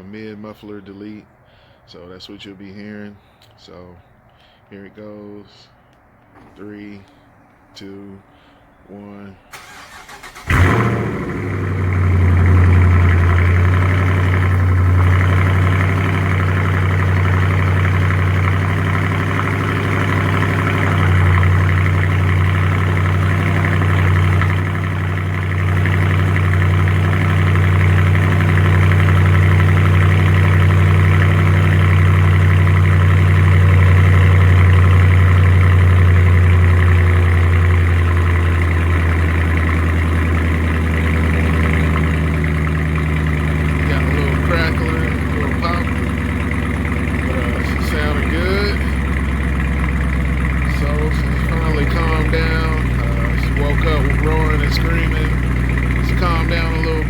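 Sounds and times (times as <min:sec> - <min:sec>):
car engine cold start and idle: 0:09.4 - 0:57.0.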